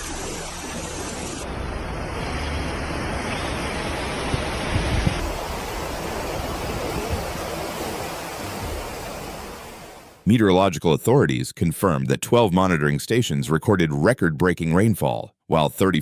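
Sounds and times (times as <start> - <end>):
flowing floodwater: 0.0 - 10.2
heavy downpour: 0.0 - 10.2.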